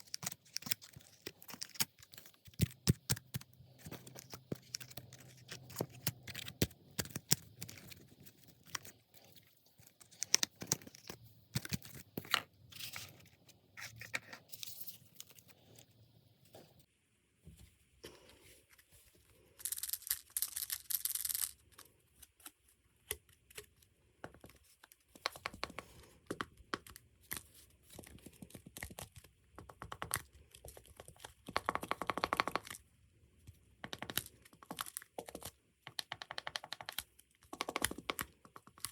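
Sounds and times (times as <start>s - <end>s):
paper crinkling and rustling: 0.0s - 15.6s.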